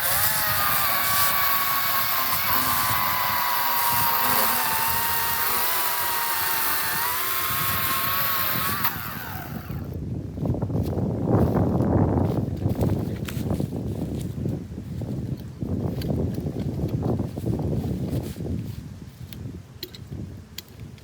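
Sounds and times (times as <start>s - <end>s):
battery chainsaw whining: 0.0s - 10.0s.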